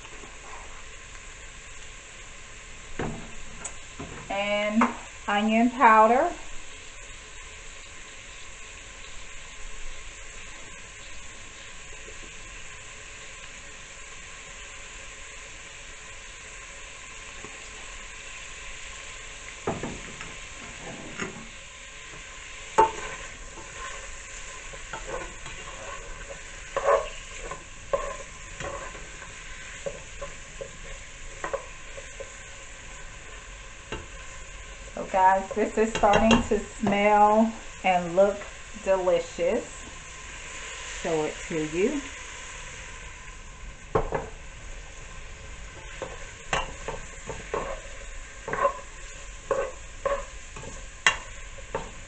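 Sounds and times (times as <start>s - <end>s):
food sizzling in a pot: 0.0s - 52.0s
spoon scraping a pot: 22.8s - 32.4s, 45.8s - 52.0s.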